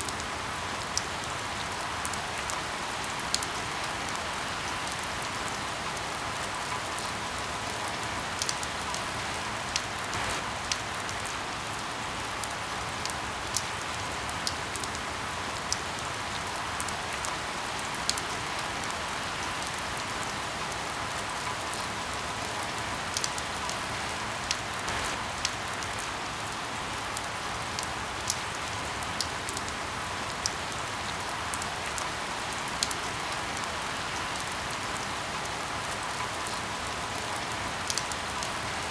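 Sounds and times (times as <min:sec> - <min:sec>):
rain hiss: 0:00.0 - 0:38.9
firewood crackling: 0:10.0 - 0:10.7, 0:24.8 - 0:25.2.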